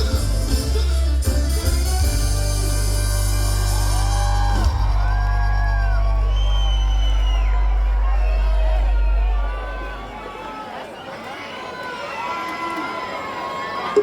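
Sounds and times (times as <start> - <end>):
sliding high keyboard notes: 0.0 - 10.0
live band sustained chord: 0.0 - 10.1
low bass note: 0.0 - 10.1
crowd whooping: 2.7 - 14.0.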